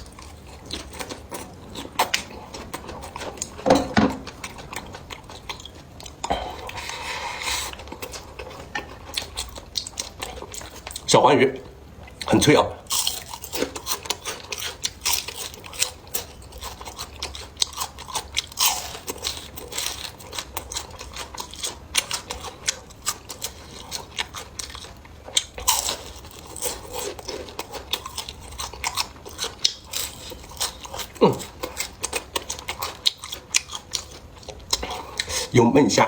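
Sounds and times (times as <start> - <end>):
crunching crispy fried fish: 12.8 - 35.4.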